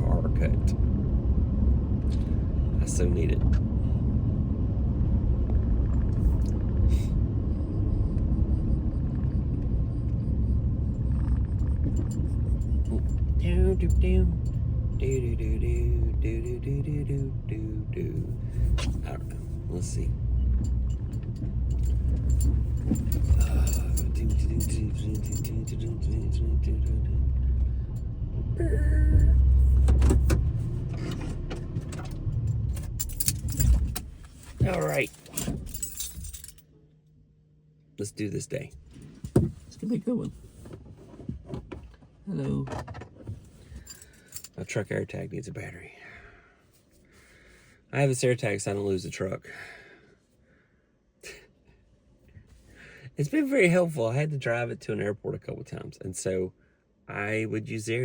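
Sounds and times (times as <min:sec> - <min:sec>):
truck engine rumbling: 0:00.0 - 0:46.3
clicks and knocks inside cab: 0:39.2 - 0:39.6, 0:40.7 - 0:44.5.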